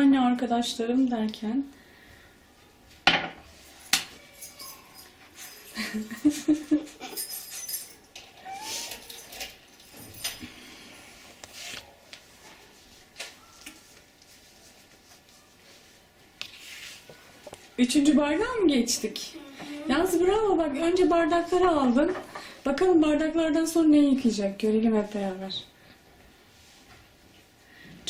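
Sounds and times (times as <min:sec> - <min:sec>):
squeaky whines of glass: 0:08.4 - 0:09.3.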